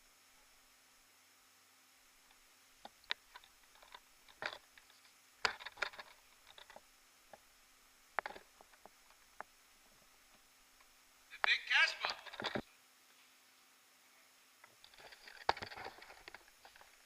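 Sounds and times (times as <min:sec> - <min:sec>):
faint clicks and taps: 0:08.1 - 0:11.5.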